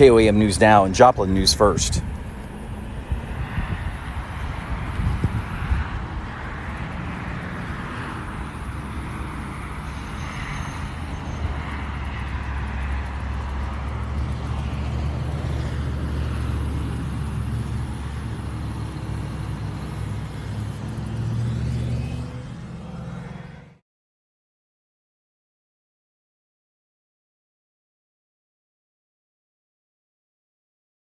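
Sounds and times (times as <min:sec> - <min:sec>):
vehicles rumbling past: 0:00.0 - 0:23.8.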